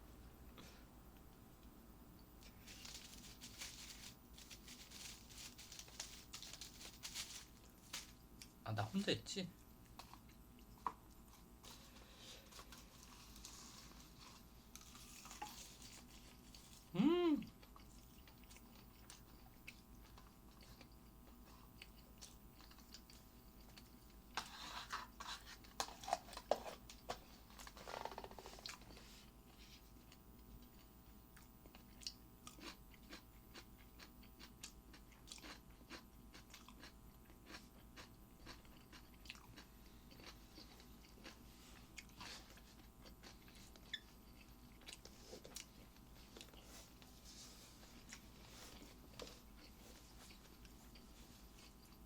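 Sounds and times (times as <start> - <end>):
person chewing: 9.8 - 26.5, 28.2 - 47.1, 47.8 - 52.0.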